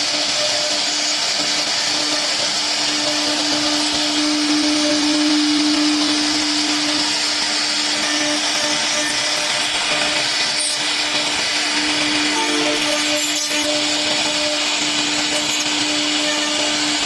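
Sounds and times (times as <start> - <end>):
router spindle whining: 0.0 - 17.0.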